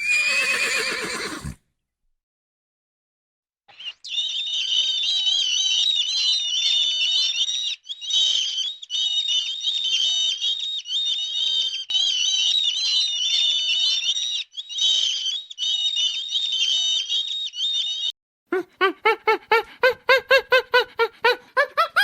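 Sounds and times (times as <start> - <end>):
small birds chirping: 3.7 - 18.2.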